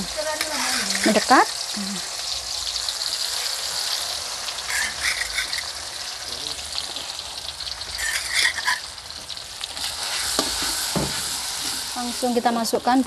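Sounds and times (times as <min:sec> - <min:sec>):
spice paste sizzling in oil: 0:00.0 - 0:13.0
scraping in wok: 0:03.8 - 0:06.1, 0:07.8 - 0:09.0, 0:09.6 - 0:12.3.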